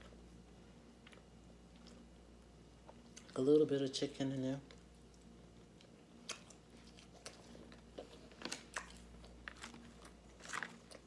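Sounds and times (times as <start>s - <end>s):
person chewing crunchy food: 0.9s - 2.1s, 4.7s - 11.0s.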